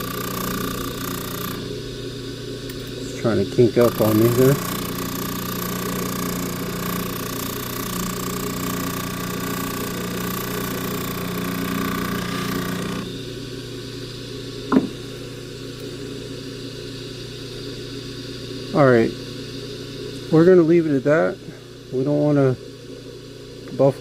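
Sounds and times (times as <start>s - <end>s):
polishing motor hum: 0.0s - 2.0s, 2.7s - 13.4s.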